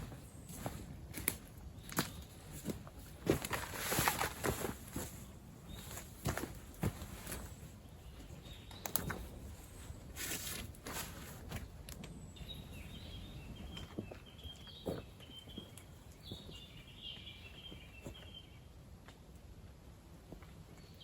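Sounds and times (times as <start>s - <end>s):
small birds chirping: 0.0s - 18.8s
camp gear clicks and rustles: 1.2s - 5.3s.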